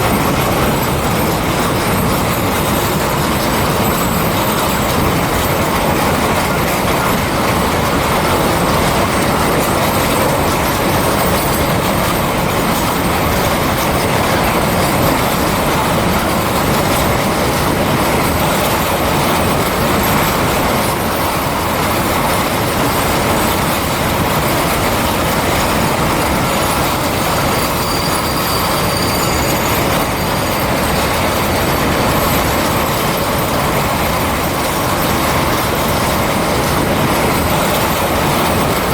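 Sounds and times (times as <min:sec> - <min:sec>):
freight train rumbling past: 0:00.0 - 0:38.9
faint wheel squeal: 0:26.7 - 0:33.5.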